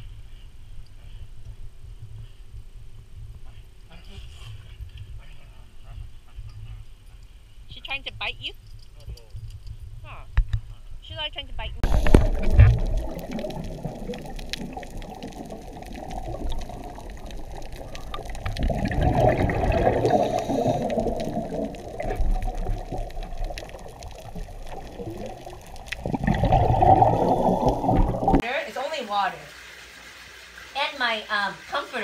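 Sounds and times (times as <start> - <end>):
muffled underwater regulator breathing: 11.8 - 13.0, 18.6 - 22.8
rushing of exhaled bubbles: 11.8 - 28.4.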